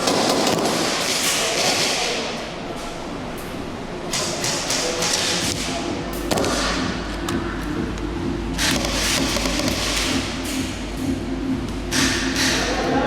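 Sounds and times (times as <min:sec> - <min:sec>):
airsoft guns firing bursts: 0:00.0 - 0:02.0.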